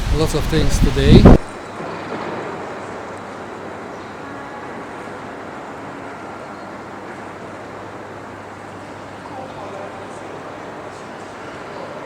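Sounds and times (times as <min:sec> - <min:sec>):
distant traffic: 0:00.0 - 0:01.6
rainfall hiss: 0:00.0 - 0:01.6.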